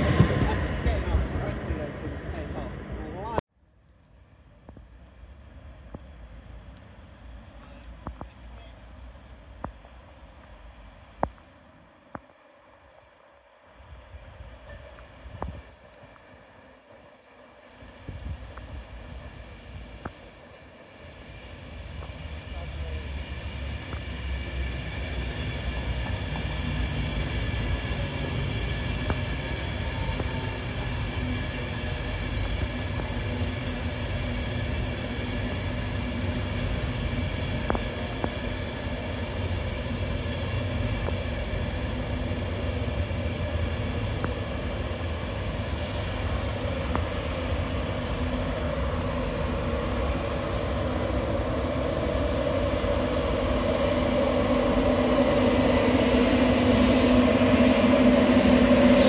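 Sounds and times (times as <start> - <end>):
coaches rumbling over rails: 0.0 - 3.4, 17.0 - 59.0
passenger train passing slowly: 0.0 - 59.0.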